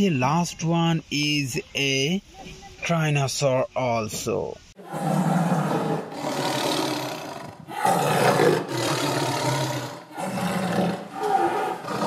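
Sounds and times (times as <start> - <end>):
dinosaur roars: 4.8 - 12.0.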